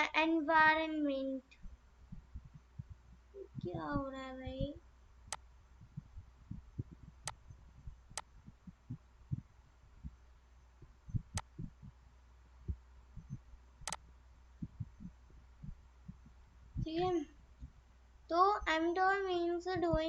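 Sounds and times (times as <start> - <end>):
steady low hum: 0.0 - 20.0
soft low knocks: 1.6 - 12.0, 12.6 - 13.9, 14.5 - 17.8
sharp clicks: 5.3 - 5.5, 6.5 - 9.0, 11.1 - 11.9, 13.2 - 15.2.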